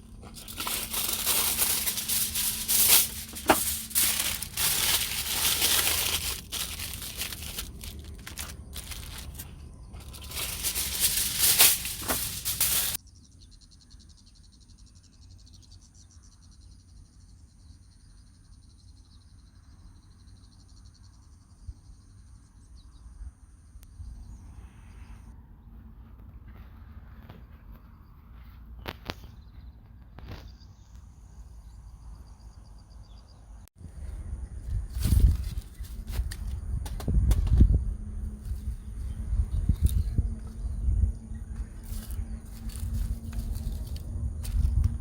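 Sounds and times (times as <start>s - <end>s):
low wind rumble: 0.0s - 13.0s, 33.8s - 45.0s
loud crinkling and crackling: 0.2s - 13.0s.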